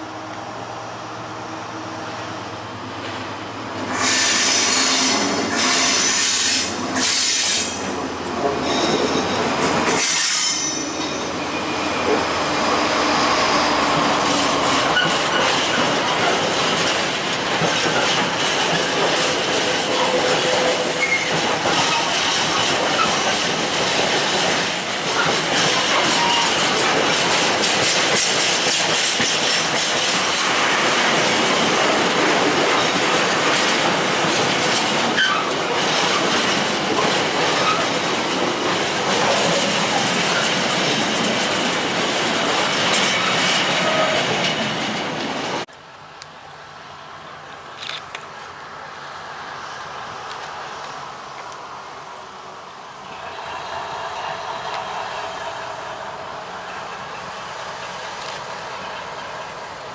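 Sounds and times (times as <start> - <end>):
train rumble: 0.0 - 59.9
train wheels clattering on rails: 3.0 - 45.7
train wheels squealing: 3.9 - 7.8, 8.6 - 15.9, 19.9 - 23.2, 25.1 - 26.9, 35.2 - 36.2, 42.9 - 44.5.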